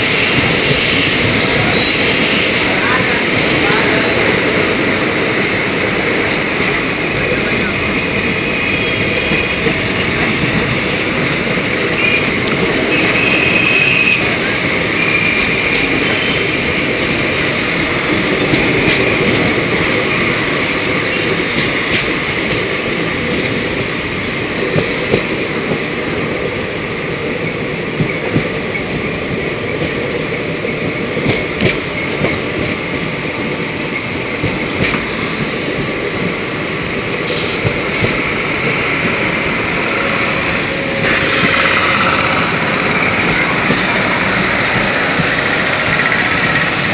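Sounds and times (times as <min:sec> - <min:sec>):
train wheels on rails: 0:00.0 - 0:46.9.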